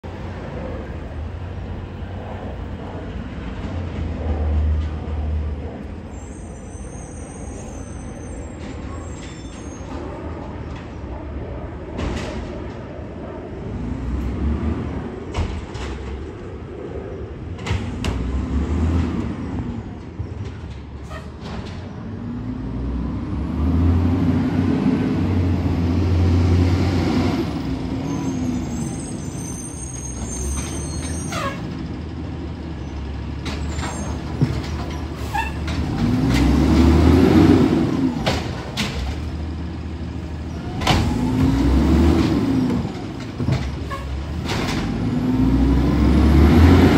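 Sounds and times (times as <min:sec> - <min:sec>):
high squeal: 0:06.1 - 0:10.1, 0:28.0 - 0:31.7
diesel truck engine revving: 0:17.9 - 0:19.4, 0:22.2 - 0:28.8, 0:34.4 - 0:46.9.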